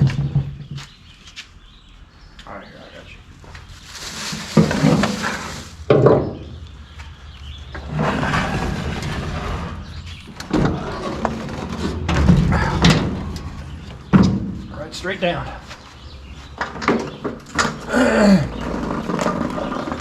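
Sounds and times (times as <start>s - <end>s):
mower thumping and clunking: 5.9s - 6.6s, 9.0s - 14.8s
long scrape: 7.8s - 10.0s
sharp knocks: 10.4s - 14.7s.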